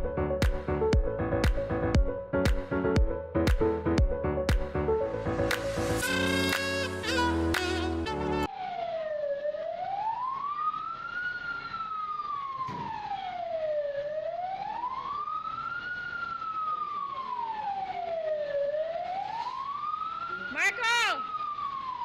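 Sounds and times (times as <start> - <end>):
siren wailing: 5.9 - 22.0.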